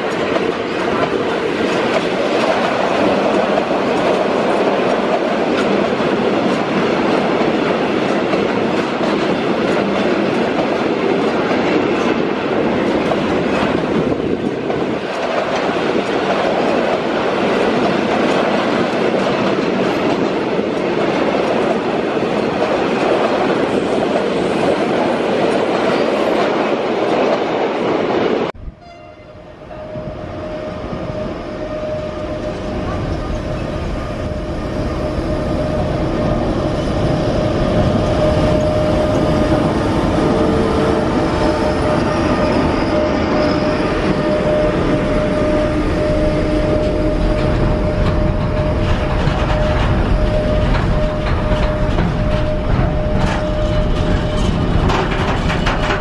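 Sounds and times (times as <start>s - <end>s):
electric locomotive passing: 0.0s - 56.0s
train wheels rumbling on rails: 0.0s - 56.0s
steady high tone: 28.6s - 54.8s.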